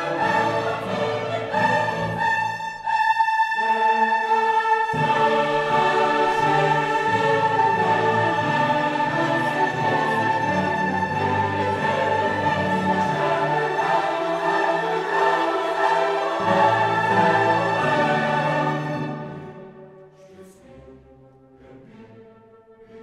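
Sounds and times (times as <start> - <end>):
choir singing: 0.0 - 23.0
slow orchestral music: 0.0 - 23.0.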